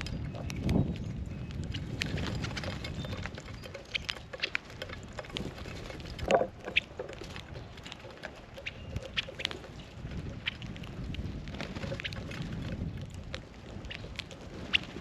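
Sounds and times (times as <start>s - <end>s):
low wind rumble: 0.0s - 15.0s
small birds chirping: 0.0s - 15.0s.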